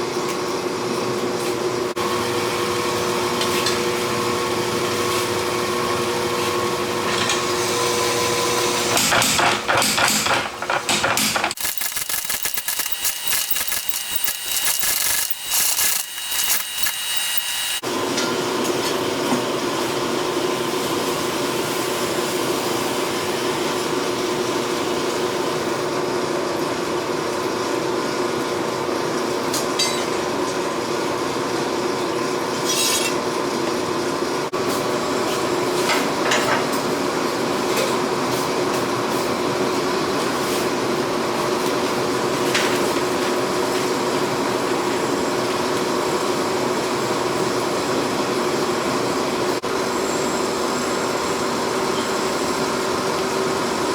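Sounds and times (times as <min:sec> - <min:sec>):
machine drone: 0:07.0 - 0:17.8
held tones: 0:11.0 - 0:17.8.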